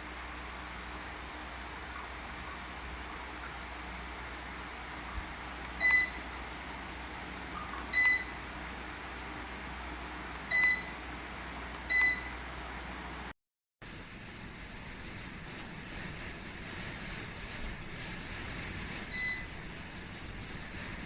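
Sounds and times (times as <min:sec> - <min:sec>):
ceiling fan short high beeps: 0:05.6 - 0:06.4, 0:07.5 - 0:08.5, 0:10.4 - 0:11.1, 0:11.8 - 0:12.5, 0:19.1 - 0:19.5.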